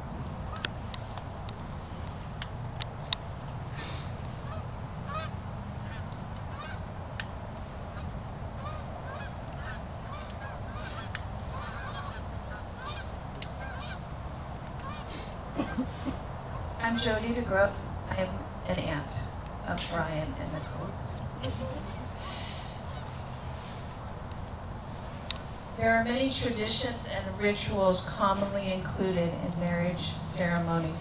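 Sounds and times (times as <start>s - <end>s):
steady low rumble: 0.0s - 31.0s
birds calling: 2.5s - 6.9s, 7.8s - 17.3s, 20.5s - 27.0s.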